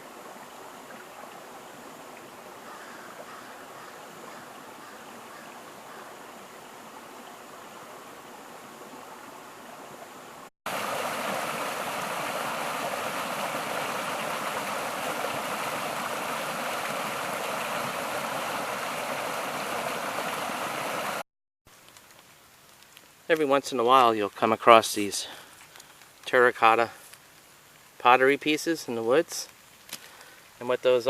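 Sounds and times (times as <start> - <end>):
stream water rushing: 0.0 - 21.2.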